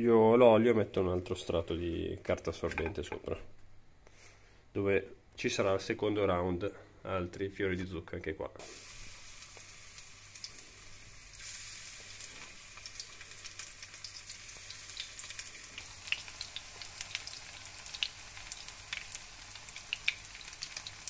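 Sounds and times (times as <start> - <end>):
flowers frying in hot oil: 8.6 - 21.0.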